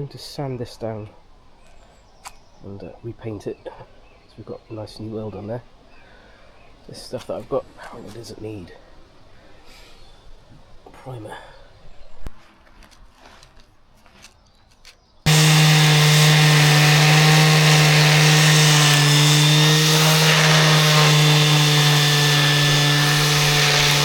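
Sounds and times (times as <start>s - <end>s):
power sander running: 15.3s - 24.0s.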